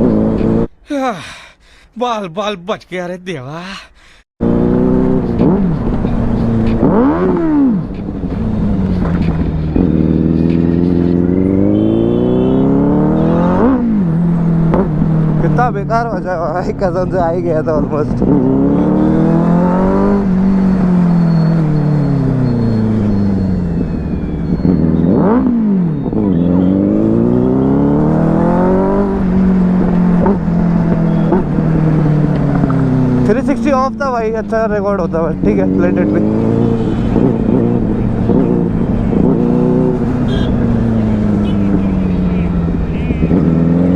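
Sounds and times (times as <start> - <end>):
motorcycle engine revving: 0.0 - 0.7, 4.4 - 43.9.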